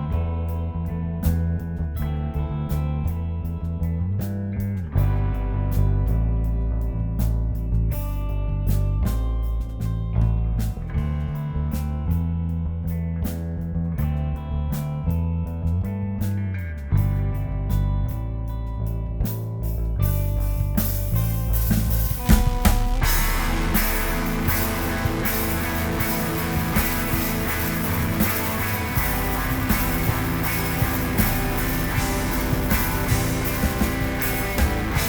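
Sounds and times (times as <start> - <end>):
bass guitar: 0.0 - 35.0
electric guitar: 0.0 - 35.0
rock band playing: 20.1 - 35.0
drum kit crashing: 20.8 - 35.0.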